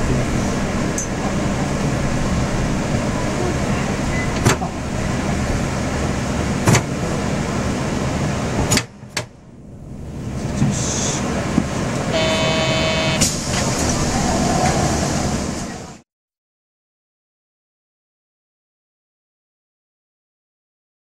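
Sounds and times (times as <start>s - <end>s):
transit train rumbling: 0.0s - 16.0s.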